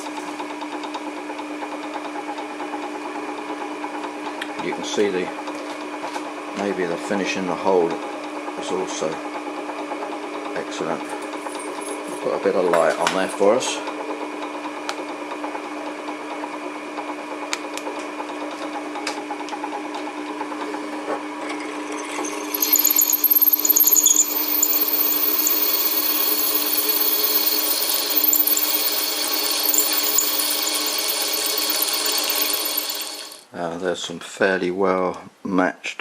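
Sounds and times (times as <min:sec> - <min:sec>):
drill bit cutting hole: 0:22.2 - 0:33.5
electric drill motor humming: 0:22.3 - 0:33.5.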